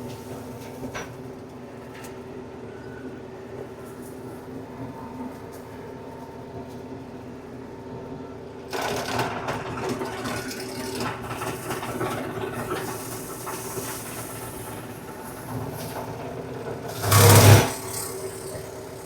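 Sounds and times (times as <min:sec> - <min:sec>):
flail mower cutting: 0:16.8 - 0:19.0.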